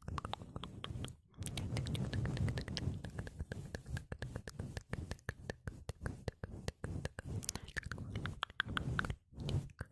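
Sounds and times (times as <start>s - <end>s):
wet mouth clicks and smacks: 0.0s - 5.6s, 7.1s - 9.9s
low rumble: 0.1s - 5.2s.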